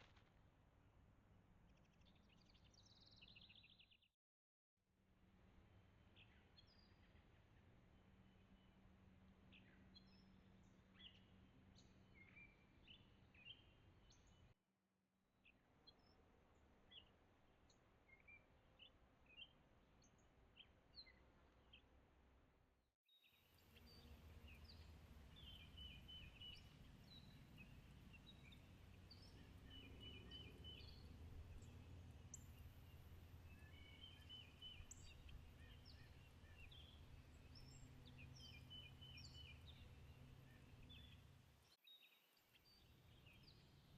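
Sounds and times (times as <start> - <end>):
birds chirping: 23.7 - 41.5.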